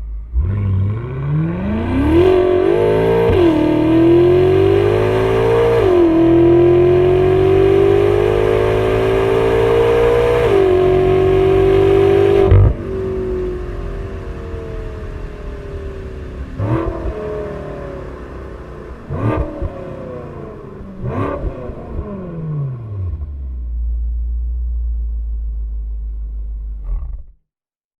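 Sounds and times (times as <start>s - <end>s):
car engine revving: 0.0s - 26.9s
car engine idling: 12.4s - 26.9s.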